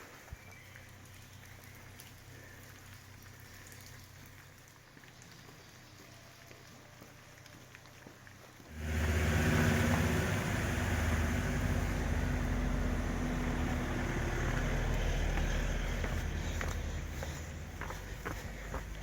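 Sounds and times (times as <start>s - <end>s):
vehicle engine running: 8.7s - 19.0s.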